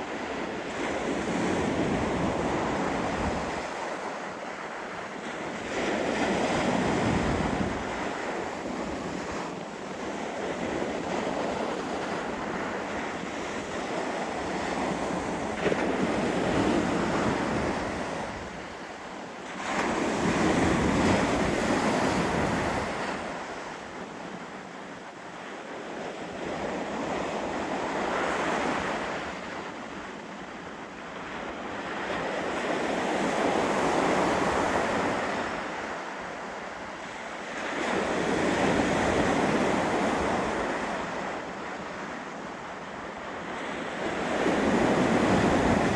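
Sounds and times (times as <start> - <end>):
wind gusting across microphone: 0.0 - 24.0.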